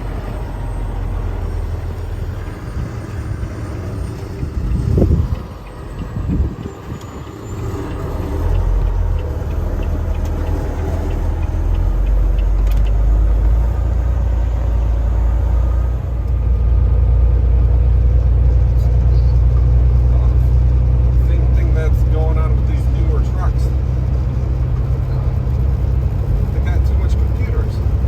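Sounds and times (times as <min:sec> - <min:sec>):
truck engine rumble: 0:00.0 - 0:28.0.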